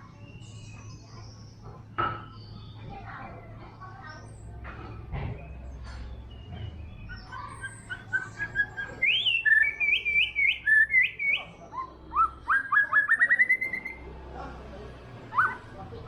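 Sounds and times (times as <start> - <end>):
bird singing whistled phrases: 6.8 - 14.0, 15.3 - 15.6.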